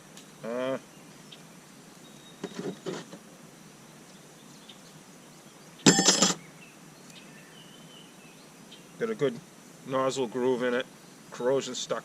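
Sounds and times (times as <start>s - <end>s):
metal parts knocking: 5.9s - 6.4s
metallic clink with ring: 5.9s - 6.4s.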